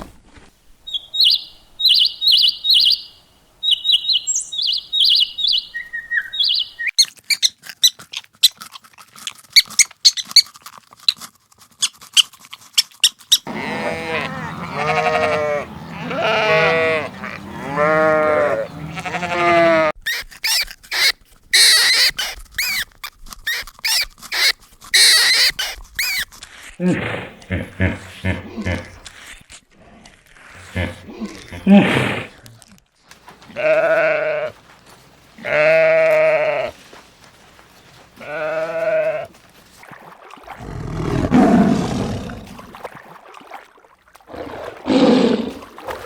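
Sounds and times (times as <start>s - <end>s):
high bird-like chirps: 0.9s - 7.5s, 20.1s - 22.9s, 23.5s - 26.3s
high-pitched squealing calls: 13.3s - 26.3s
goats bleating: 13.5s - 20.0s, 33.4s - 34.6s, 35.4s - 36.8s, 38.2s - 39.4s.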